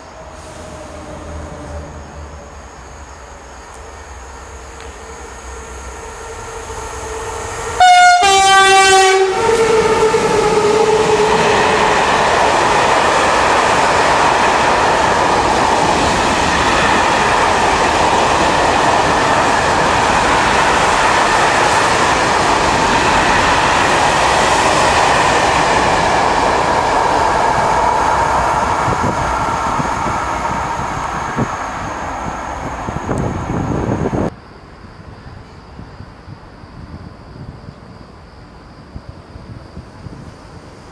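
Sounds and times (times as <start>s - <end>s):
train wheels on rail: 0.0s - 34.4s
train two-note horn: 4.7s - 11.3s.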